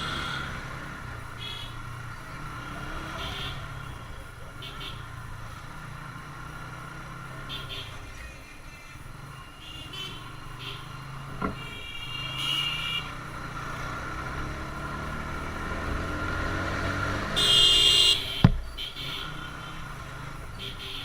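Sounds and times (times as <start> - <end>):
vehicle horns honking: 0.0 - 5.7, 7.2 - 21.0
motorcycle engine running: 0.0 - 21.0
road noise: 0.0 - 21.0
sharp thump: 18.4 - 18.7.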